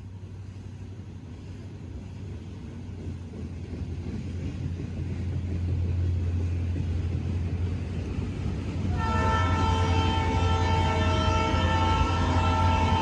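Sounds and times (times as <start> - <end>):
diesel locomotive engine rumble: 0.0 - 13.0
locomotive air horn chord: 8.9 - 13.0.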